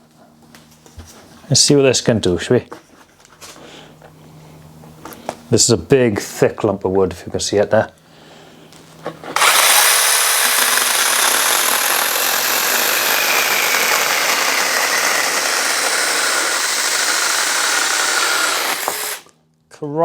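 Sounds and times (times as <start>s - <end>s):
electric chainsaw cutting log: 9.3s - 19.3s.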